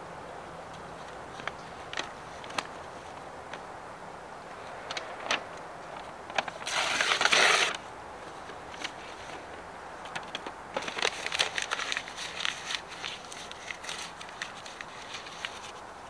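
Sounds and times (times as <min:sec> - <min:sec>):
harsh scraping: 0:06.6 - 0:07.8.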